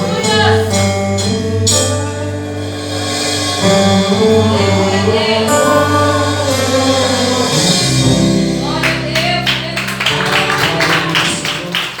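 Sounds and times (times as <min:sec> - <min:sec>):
gospel singing with held chords: 0:00.0 - 0:08.7.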